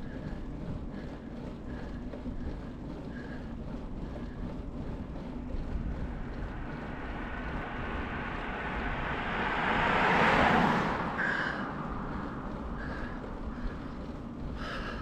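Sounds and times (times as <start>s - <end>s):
vehicle passing close: 5.1s - 14.4s.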